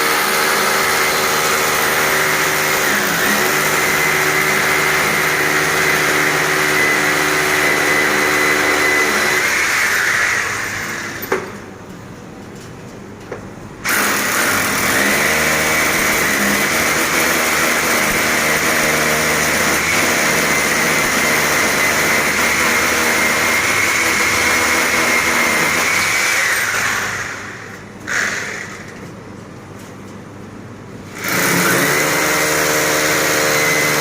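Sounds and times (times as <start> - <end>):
electric power tool whining: 0.0 - 11.4, 13.9 - 28.9.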